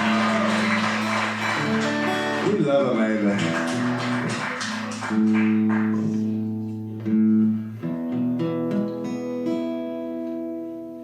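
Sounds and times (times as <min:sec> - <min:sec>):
audience applause: 0:00.0 - 0:06.4
acoustic guitar strumming: 0:00.0 - 0:11.0.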